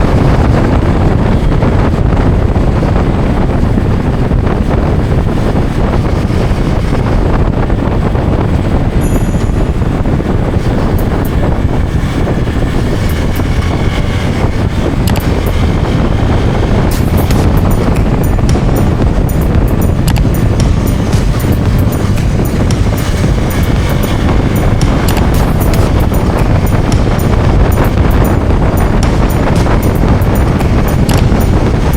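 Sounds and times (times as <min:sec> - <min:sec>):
motorcycle engine running: 0:00.0 - 0:31.9
road noise: 0:00.0 - 0:31.9
wind buffeting microphone: 0:00.0 - 0:31.9.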